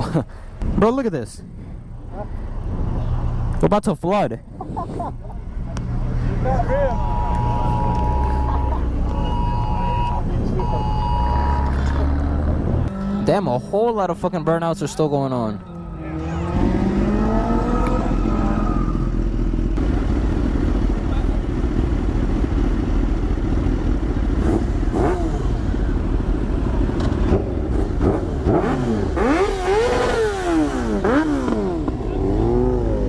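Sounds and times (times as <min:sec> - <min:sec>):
steady engine drone: 0:04.4 - 0:33.0
car engines revving hard: 0:10.3 - 0:20.0, 0:24.2 - 0:33.0.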